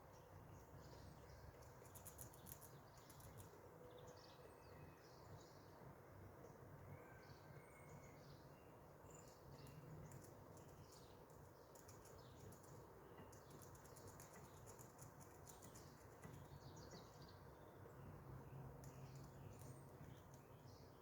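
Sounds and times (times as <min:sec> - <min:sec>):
faint outdoor hiss: 0:00.0 - 0:21.0
faint high bird chirps: 0:06.8 - 0:08.3.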